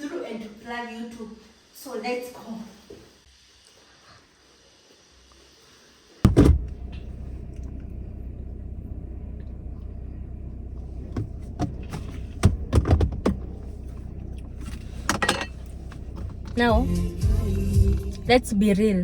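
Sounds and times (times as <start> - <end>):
car door slamming: 6.3 - 7.1, 11.1 - 13.5
car engine rumbling: 6.3 - 19.0.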